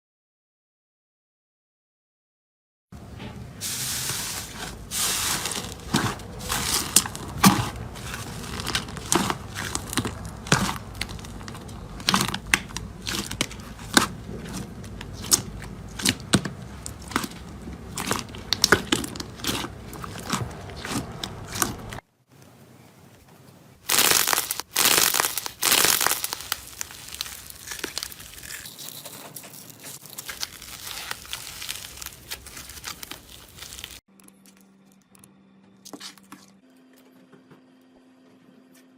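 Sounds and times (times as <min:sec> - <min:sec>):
slime crackling and popping: 0:04.0 - 0:22.0, 0:23.8 - 0:34.6.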